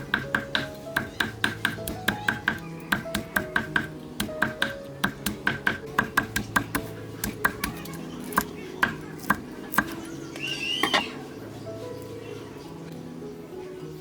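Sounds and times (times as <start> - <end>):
knife chopping on cutting board: 0.0 - 10.0
background music: 0.0 - 14.0.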